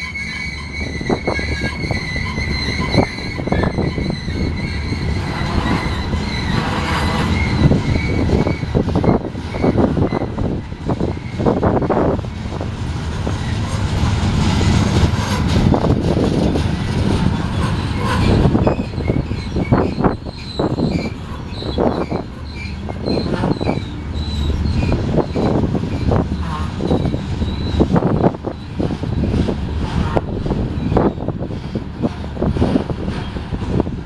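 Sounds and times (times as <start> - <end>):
high wheel squeal: 0.0 - 34.0
train wheels rumbling on rails: 0.0 - 34.0.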